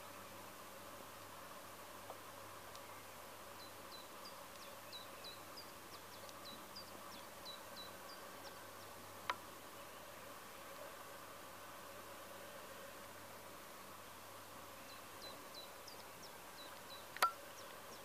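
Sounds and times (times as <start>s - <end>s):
faint steady hum: 0.0s - 18.0s
faint bird chirping: 2.7s - 10.9s, 14.6s - 18.0s.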